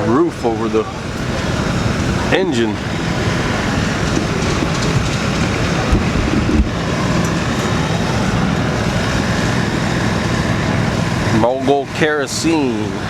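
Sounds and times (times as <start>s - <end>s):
engines rumbling: 0.0s - 13.0s
wind buffeting microphone: 1.0s - 11.3s.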